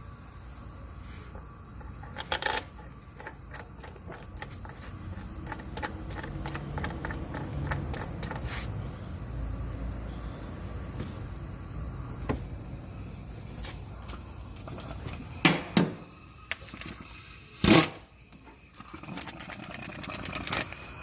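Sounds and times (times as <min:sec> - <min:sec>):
sharp engine ticking: 0:05.2 - 0:08.4.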